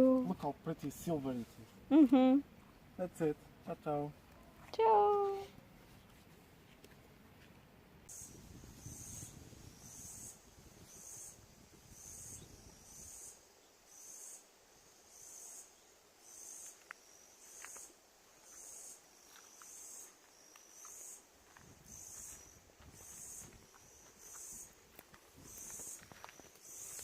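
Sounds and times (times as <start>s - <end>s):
insect buzzing pulses: 8.1s - 24.8s, 25.4s - 27.0s.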